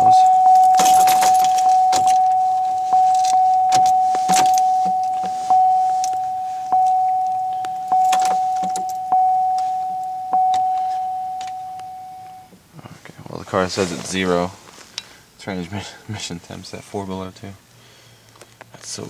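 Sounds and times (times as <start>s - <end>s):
car keys jangling: 0.0s - 12.5s
car warning chime dinging: 0.0s - 12.6s.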